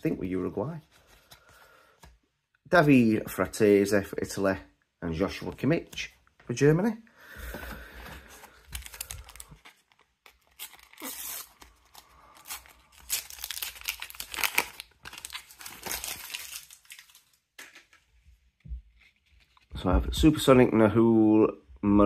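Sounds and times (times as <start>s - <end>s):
wrapper crinkling and rustling: 8.5s - 18.0s
sticker packet being torn open: 8.8s - 17.4s.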